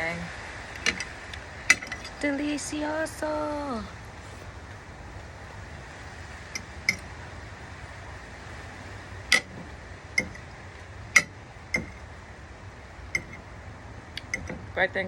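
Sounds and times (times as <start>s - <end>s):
utensil clinking against a dish: 1.7s - 2.2s, 9.3s - 10.5s, 11.1s - 12.1s, 13.1s - 13.4s, 14.2s - 14.8s.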